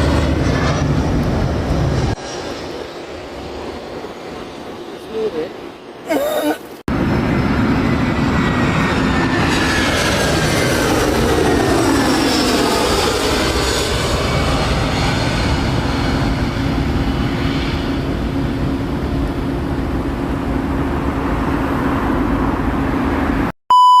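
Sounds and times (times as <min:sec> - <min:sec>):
jet airliner engine roar: 0:00.0 - 0:06.1, 0:06.7 - 0:23.5
loud steady beep: 0:23.7 - 0:24.0.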